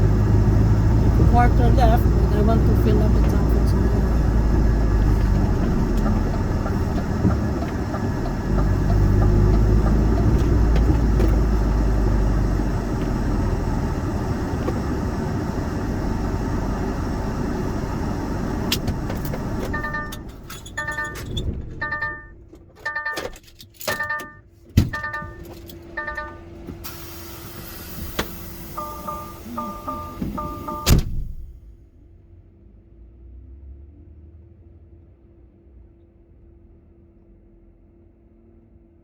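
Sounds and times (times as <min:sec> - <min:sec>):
lorry diesel engine rumbling: 0:00.0 - 0:33.2
short pitched beeps: 0:20.8 - 0:22.3, 0:24.0 - 0:26.5, 0:28.7 - 0:31.0.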